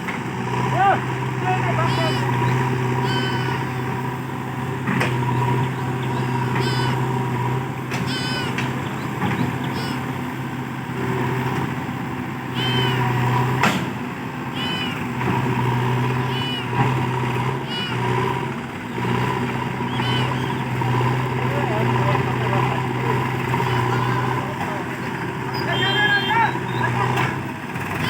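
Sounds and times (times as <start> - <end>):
heavy diesel machinery running: 0.0 - 28.0
short high-pitched squeals: 1.8 - 4.0, 5.2 - 8.9, 9.6 - 10.2, 12.5 - 13.5, 14.5 - 21.3, 23.4 - 24.4, 25.0 - 27.2.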